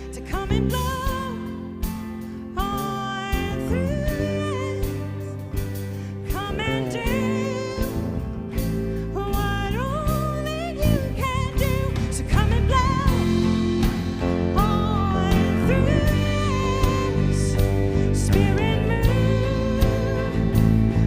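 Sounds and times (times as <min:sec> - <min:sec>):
person singing: 0:00.0 - 0:21.0
band with drums: 0:10.1 - 0:21.0.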